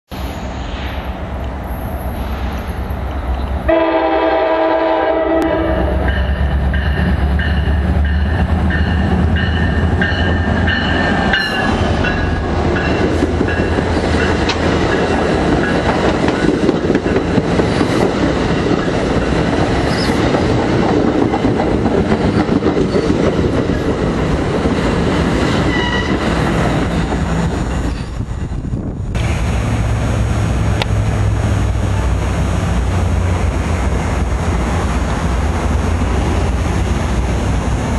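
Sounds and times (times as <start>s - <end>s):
train wheels on rails: 0.1s - 37.9s
train horn blast: 3.7s - 6.4s, 25.6s - 26.3s.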